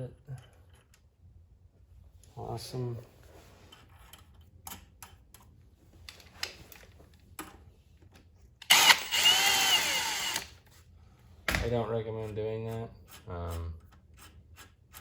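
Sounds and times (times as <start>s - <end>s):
power drill running: 8.6s - 10.6s.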